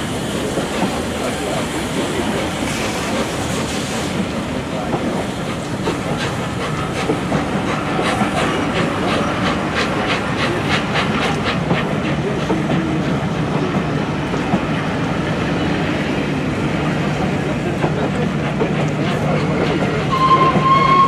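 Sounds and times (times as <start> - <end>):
train engine hum: 0.0 - 21.0
train wheels clicking over rail joints: 0.1 - 15.2.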